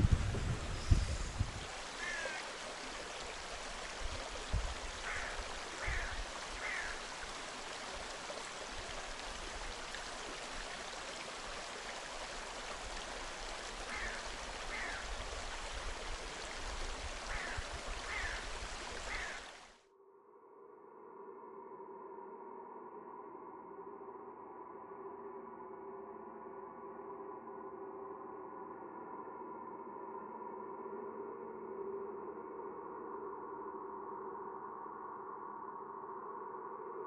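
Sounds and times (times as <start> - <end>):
flowing stream rushing: 0.0 - 19.8.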